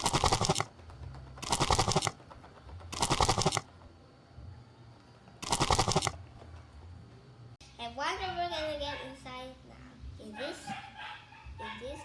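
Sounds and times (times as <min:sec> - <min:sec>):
rapid clicking rattle: 0:00.0 - 0:04.0.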